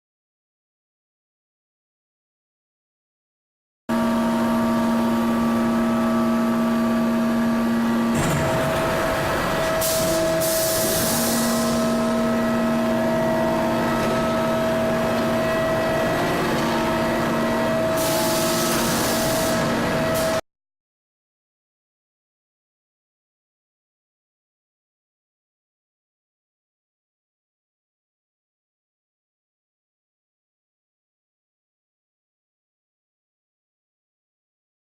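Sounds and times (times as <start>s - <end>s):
furnace electrical hum: 3.9s - 20.4s.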